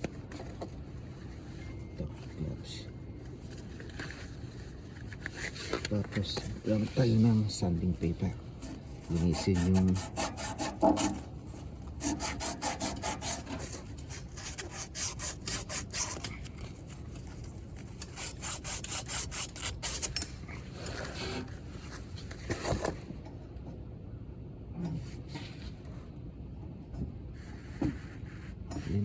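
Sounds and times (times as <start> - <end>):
sandpaper scrubbing by hand: 9.1 - 11.1, 12.0 - 16.2, 18.1 - 20.0.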